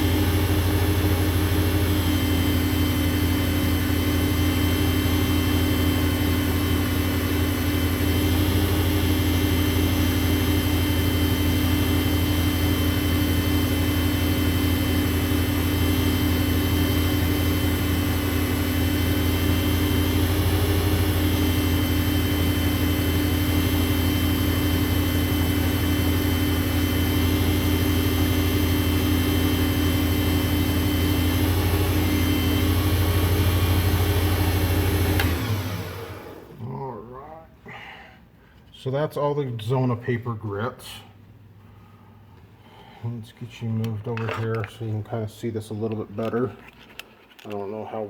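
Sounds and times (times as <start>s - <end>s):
lathe motor hum and whine: 0.0s - 36.6s.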